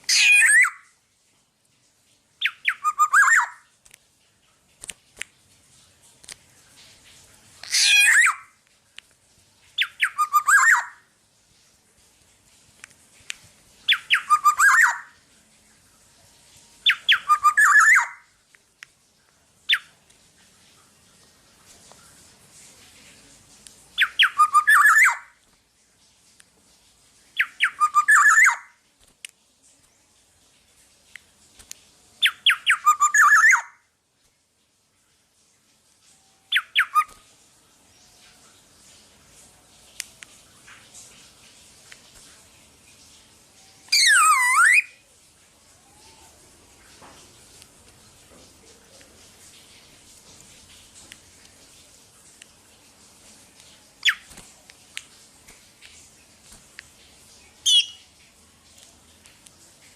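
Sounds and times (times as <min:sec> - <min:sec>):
harsh nasal bird squawk: 0:00.1 - 0:00.8, 0:02.4 - 0:03.6, 0:07.6 - 0:08.5, 0:09.8 - 0:11.0, 0:13.9 - 0:15.1, 0:16.9 - 0:18.2, 0:57.7 - 0:58.0
bird singing fluty whistles: 0:02.4 - 0:03.6, 0:09.8 - 0:11.0, 0:13.9 - 0:15.0, 0:16.8 - 0:18.2, 0:27.4 - 0:28.7, 0:32.2 - 0:33.8, 0:36.5 - 0:37.1, 0:57.7 - 0:58.0.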